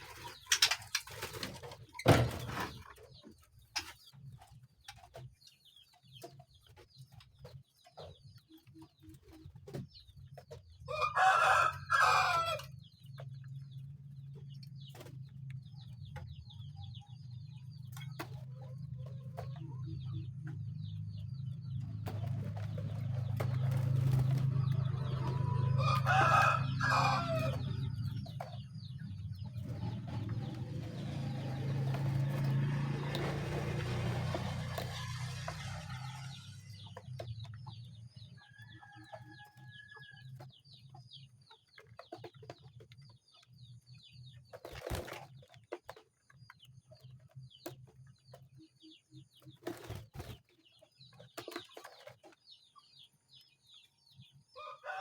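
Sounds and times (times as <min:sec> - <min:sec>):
rooster crowing: 0:10.9 - 0:12.6, 0:25.2 - 0:27.8, 0:54.6 - 0:55.0.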